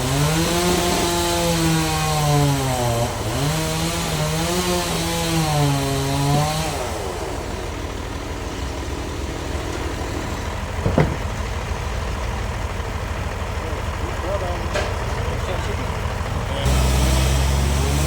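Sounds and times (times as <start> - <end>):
bandsaw cutting log: 0.0 - 11.3, 16.6 - 18.0
sawmill machinery running: 0.0 - 18.0
sharp knock: 10.8 - 11.3.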